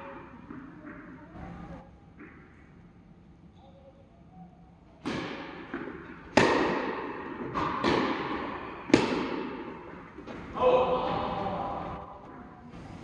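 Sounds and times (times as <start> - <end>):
tennis ball bouncing: 0.0 - 1.5, 5.0 - 10.4
tennis rackets hitting ball: 0.0 - 1.5, 5.0 - 10.6.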